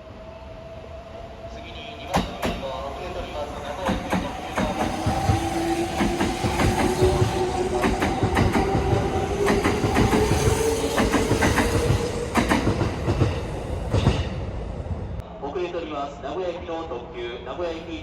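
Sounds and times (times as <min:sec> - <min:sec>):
train wheels clacking over rail joints: 0:03.8 - 0:14.3.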